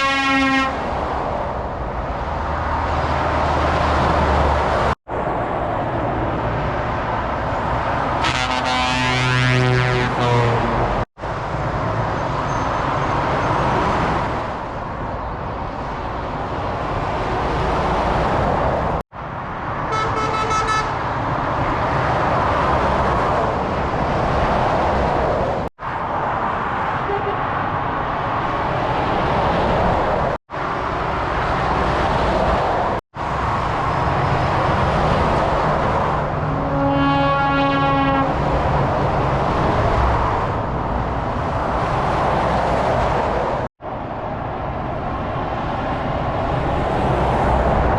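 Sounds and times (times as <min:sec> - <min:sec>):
truck air horns: 0:00.0 - 0:00.9, 0:08.2 - 0:11.0, 0:19.9 - 0:21.0, 0:27.0 - 0:27.5, 0:36.5 - 0:38.4
lorries passing on motorway: 0:00.0 - 0:47.9.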